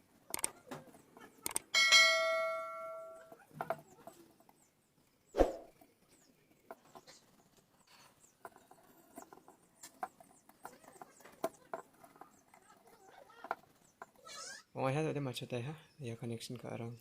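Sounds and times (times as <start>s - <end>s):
sharp click: 0.3s - 0.5s, 1.4s - 1.7s
small clicks and scratchy handling: 0.3s - 1.7s.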